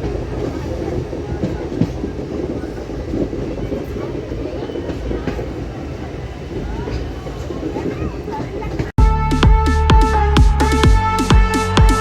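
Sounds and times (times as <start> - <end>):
train rumbling and rattling: 0.0 - 9.0.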